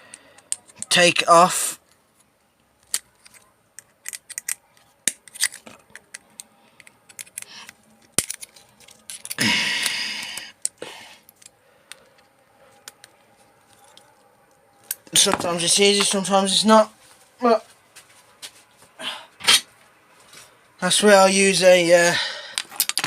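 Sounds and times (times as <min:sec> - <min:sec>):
small metal parts clicking: 0:02.8 - 0:12.2, 0:22.6 - 0:23.0.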